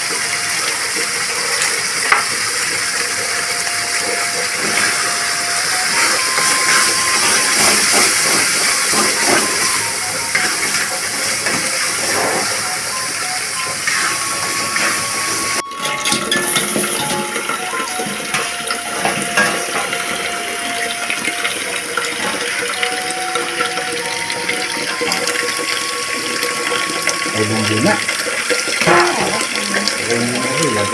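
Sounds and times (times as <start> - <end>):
metal pans clattering: 14.8 - 20.6, 28.5 - 29.9.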